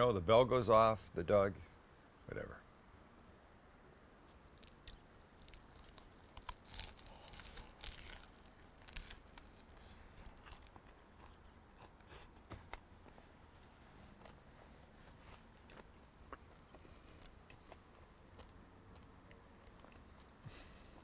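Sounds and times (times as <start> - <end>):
person crunching a sandwich: 4.2 - 12.9, 15.2 - 21.0.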